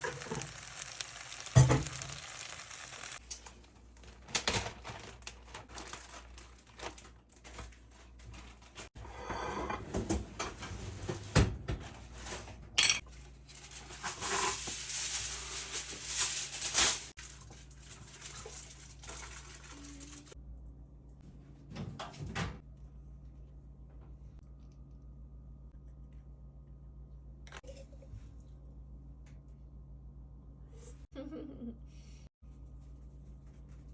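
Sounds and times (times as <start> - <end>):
dishes and utensils clinking: 12.8 - 13.2.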